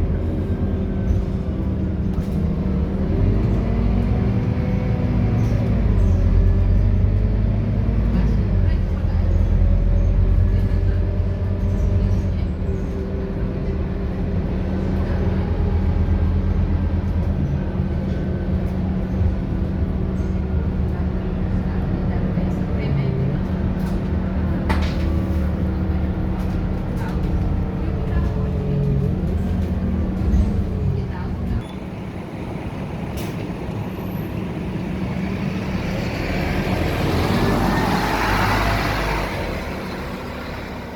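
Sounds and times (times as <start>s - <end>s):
bus diesel engine drone: 0.0s - 40.9s.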